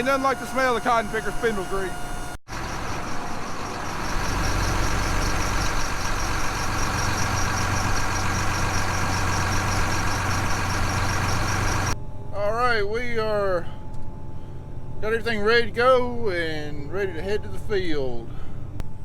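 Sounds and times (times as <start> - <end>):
fast high-pitched ticking: 0.0 - 12.0
machinery low hum: 0.0 - 19.0.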